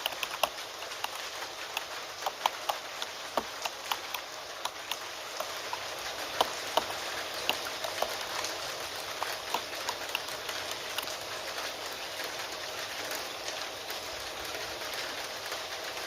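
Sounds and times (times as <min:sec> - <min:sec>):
computer keyboard typing: 0:00.0 - 0:11.6
steady rain falling: 0:00.0 - 0:16.0.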